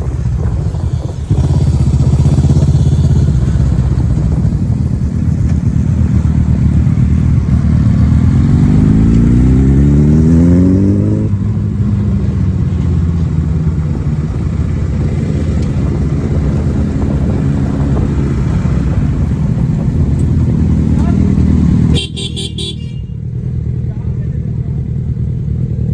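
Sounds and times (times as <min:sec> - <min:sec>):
wind noise: 0:00.0 - 0:22.0
motorcycle engine accelerating: 0:00.0 - 0:25.9.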